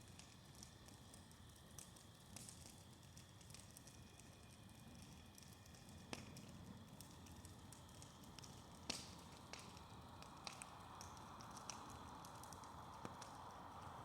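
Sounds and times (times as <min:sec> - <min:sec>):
low fire rumble: 0:00.2 - 0:14.0
bonfire pops and cracks: 0:05.1 - 0:13.4.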